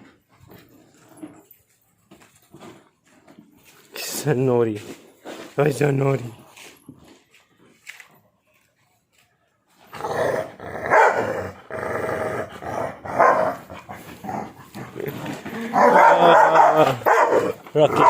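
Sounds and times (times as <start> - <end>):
dogs growling and barking: 9.8 - 18.0.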